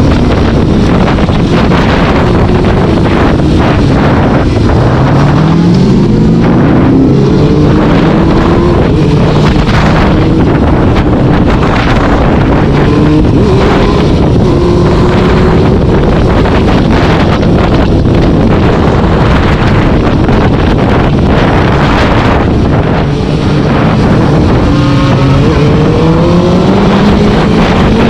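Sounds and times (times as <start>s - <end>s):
vehicle engine accelerating: 0.0s - 28.0s
wind buffeting microphone: 0.0s - 28.0s.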